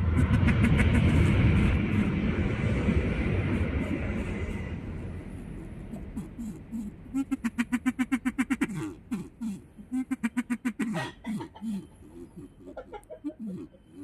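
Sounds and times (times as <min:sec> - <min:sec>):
chicken clucking: 0:05.8 - 0:14.0.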